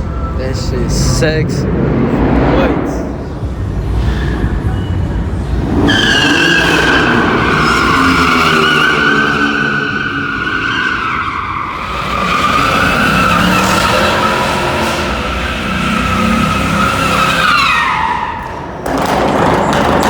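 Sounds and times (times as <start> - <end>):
car engine running hard: 0.0 - 20.0
car tires squealing: 3.8 - 19.2.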